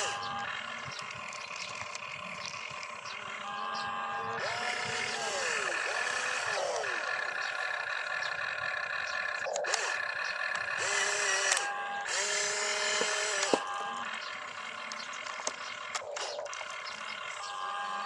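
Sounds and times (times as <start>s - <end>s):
small electric motors whirring: 0.0s - 18.0s
sharp clicks: 9.4s - 14.3s, 14.9s - 17.0s.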